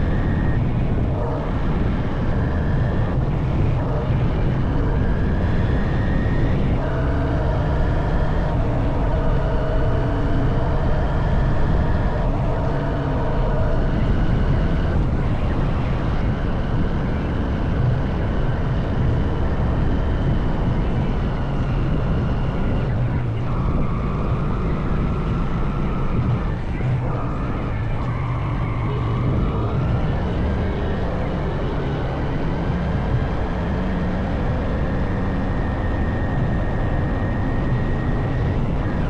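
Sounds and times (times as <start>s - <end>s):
wind and road noise: 0.0s - 39.0s.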